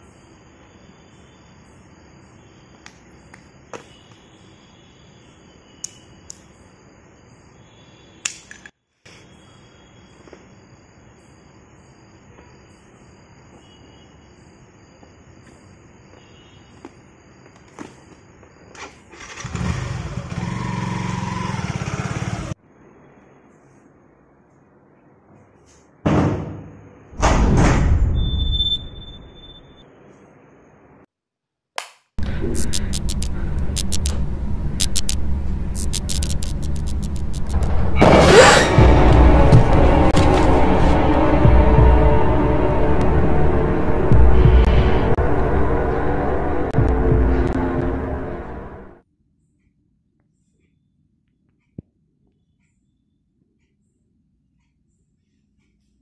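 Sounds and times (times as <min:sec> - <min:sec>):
crickets chirring: 0:00.0 - 0:26.0, 0:28.1 - 0:31.1, 0:32.2 - 0:47.1
booming impact hits: 0:27.2 - 0:28.1, 0:37.2 - 0:46.1
sharp clicks and taps: 0:32.6 - 0:34.2, 0:34.8 - 0:35.2, 0:35.8 - 0:37.6.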